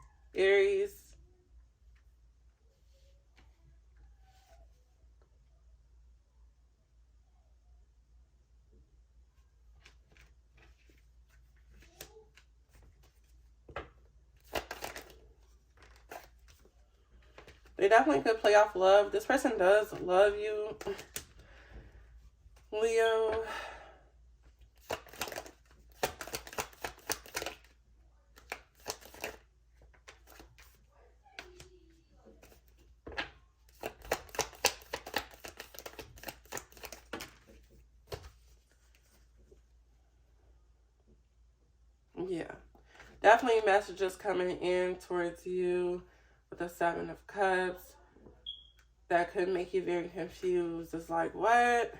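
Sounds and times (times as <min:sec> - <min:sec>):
cards shuffling: 0:09.8 - 0:18.4, 0:19.3 - 0:21.4, 0:24.6 - 0:30.8, 0:32.3 - 0:39.5.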